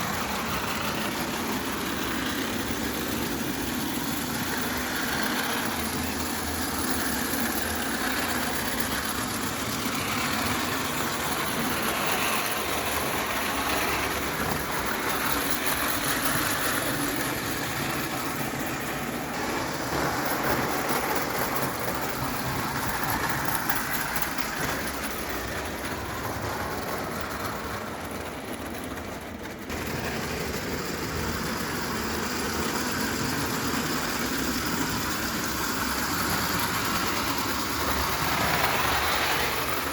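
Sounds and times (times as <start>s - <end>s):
model steam locomotive hissing: 0.0s - 39.9s.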